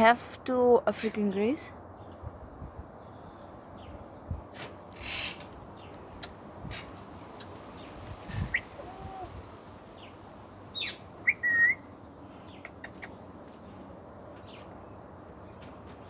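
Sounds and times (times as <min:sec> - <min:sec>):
parrot whistle: 0:10.8 - 0:11.8
parrot squawks and chirps: 0:10.8 - 0:11.9.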